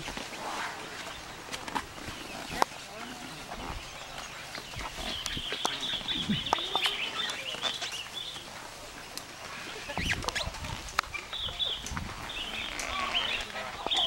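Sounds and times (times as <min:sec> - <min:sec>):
bird twittering: 0:03.8 - 0:08.4.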